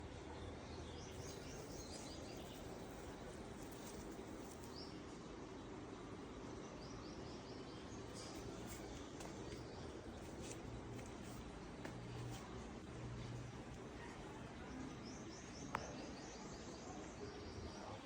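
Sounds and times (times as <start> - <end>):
outdoor background noise: 0.0 - 18.0
birds chirping: 0.8 - 5.7.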